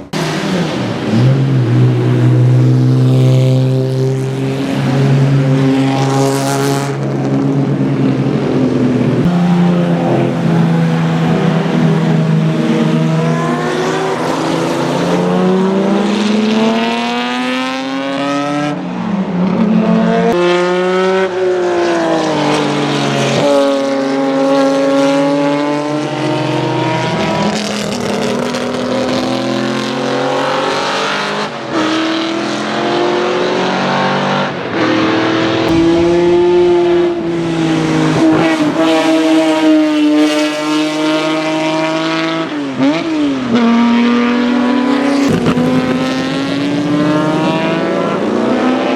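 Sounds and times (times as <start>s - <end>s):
race car engine revving past: 9.2s - 18.9s, 19.5s - 48.9s.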